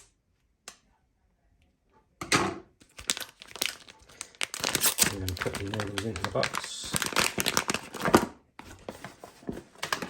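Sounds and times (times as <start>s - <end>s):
plastic rustling and crackling: 2.8s - 10.0s
plastic pouch cut with scissors: 3.0s - 8.2s.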